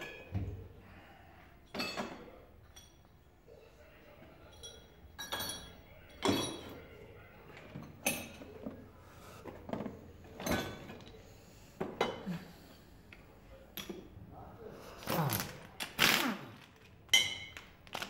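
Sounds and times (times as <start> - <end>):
metal tools clinking: 4.4 - 6.8.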